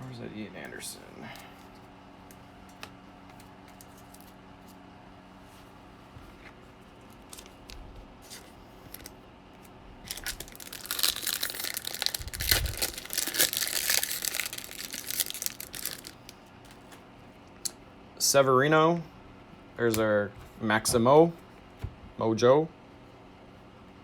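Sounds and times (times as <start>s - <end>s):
foil wrapper tearing and crinkling: 7.2s - 9.1s, 10.0s - 17.0s.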